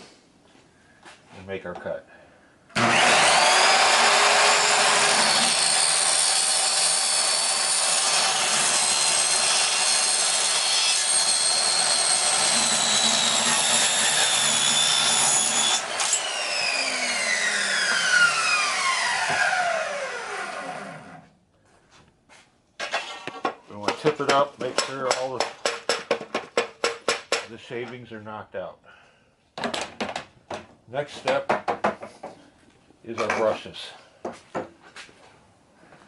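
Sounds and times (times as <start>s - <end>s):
power saw cutting metal tube: 2.8s - 21.2s
saw blade spinning down whine: 15.5s - 21.2s.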